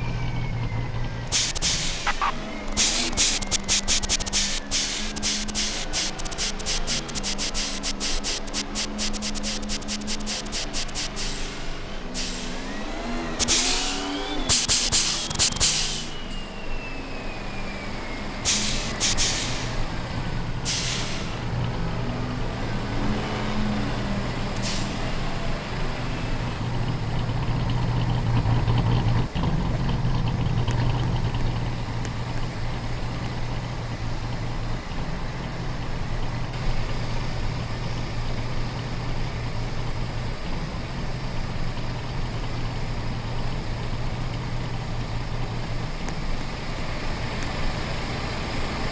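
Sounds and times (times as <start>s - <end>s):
high whine: 0.0s - 29.2s
truck engine running: 0.0s - 48.9s.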